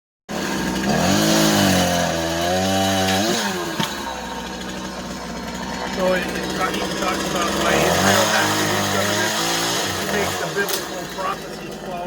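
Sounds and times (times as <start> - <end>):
chainsaw engine revving: 0.3 - 12.0.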